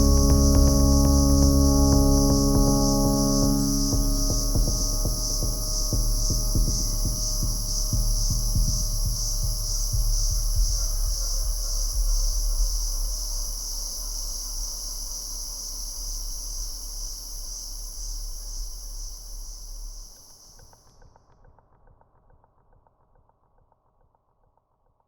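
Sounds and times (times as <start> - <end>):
low hum: 0.0 - 12.6
insects chirring: 0.0 - 20.4.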